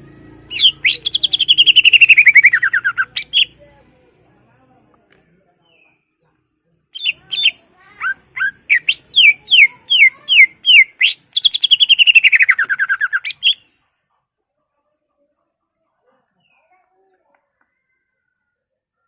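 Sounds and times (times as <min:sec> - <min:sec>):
bird whistling and trilling: 0:00.5 - 0:03.5, 0:07.0 - 0:13.7.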